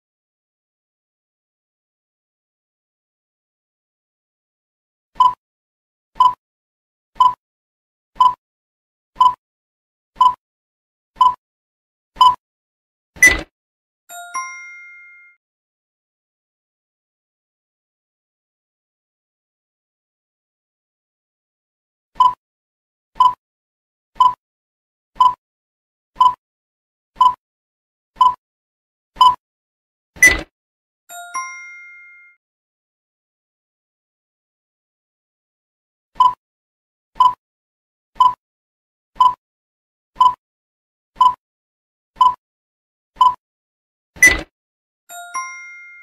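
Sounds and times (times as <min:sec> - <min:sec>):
countdown timer ticks: 0:05.2 - 0:05.4, 0:06.2 - 0:06.4, 0:07.2 - 0:07.4, 0:08.2 - 0:08.4, 0:09.2 - 0:09.4, 0:10.2 - 0:10.4, 0:11.2 - 0:11.4, 0:12.2 - 0:12.4, 0:22.2 - 0:22.4, 0:23.2 - 0:23.4, 0:24.2 - 0:24.4, 0:25.2 - 0:25.4, 0:26.2 - 0:26.4, 0:27.2 - 0:27.4, 0:28.2 - 0:28.4, 0:29.2 - 0:29.4, 0:36.2 - 0:36.4, 0:37.2 - 0:37.4, 0:38.2 - 0:38.4, 0:39.2 - 0:39.4, 0:40.2 - 0:40.4, 0:41.2 - 0:41.4, 0:42.2 - 0:42.4, 0:43.2 - 0:43.4.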